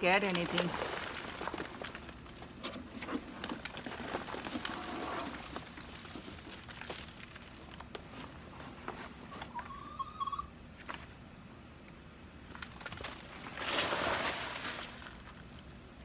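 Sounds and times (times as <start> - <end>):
hands rummaging through soil: 0.0 - 9.6, 12.6 - 15.8
small crackles: 0.0 - 9.7, 11.8 - 16.0.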